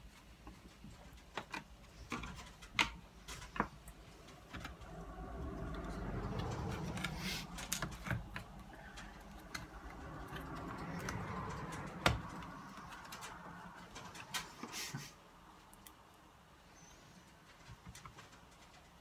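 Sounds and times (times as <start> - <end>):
handling clicks taps and scrapes: 0.0 - 15.1, 17.1 - 19.0.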